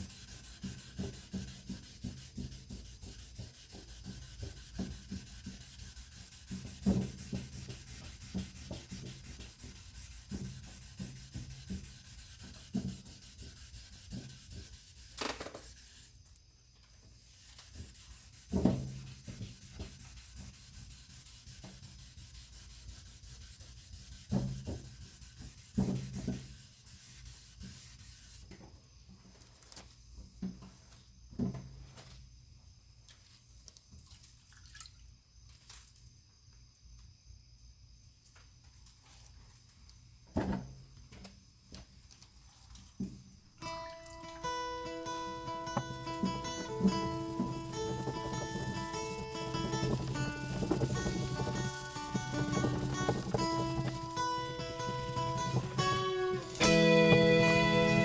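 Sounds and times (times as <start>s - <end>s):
sandpaper rubbing on car paint: 0.0s - 16.2s, 17.1s - 28.5s, 44.9s - 58.0s
knocks: 45.4s - 58.0s.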